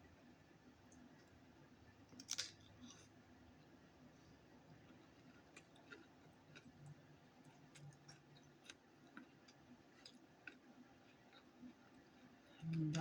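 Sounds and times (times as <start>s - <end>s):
person chewing food: 4.8s - 12.7s.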